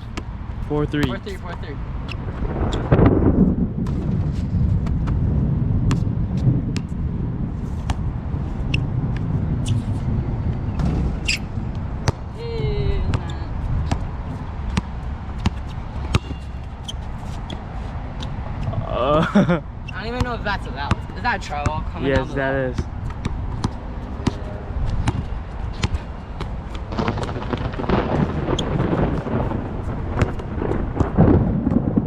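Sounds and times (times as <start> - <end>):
steady low rumble: 0.0 - 32.0
basketball bouncing on court: 0.9 - 1.6, 5.8 - 6.1, 10.8 - 12.4, 13.1 - 17.6, 20.1 - 29.5, 30.2 - 31.8
gliding squeak: 9.6 - 10.1, 11.0 - 11.5, 15.6 - 18.0.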